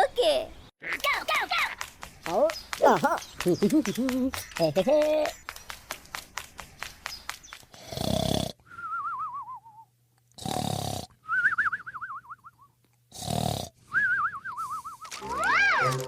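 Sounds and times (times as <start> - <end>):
cartoon snoring with whistle: 7.8 - 8.6, 10.4 - 11.2, 13.1 - 15.0.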